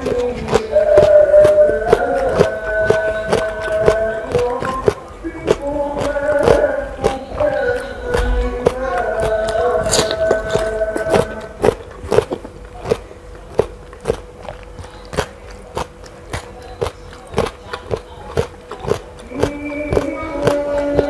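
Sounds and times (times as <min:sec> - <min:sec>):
droning tone: 0:00.0 - 0:12.0
chewing crunchy raw fruit: 0:00.0 - 0:21.0.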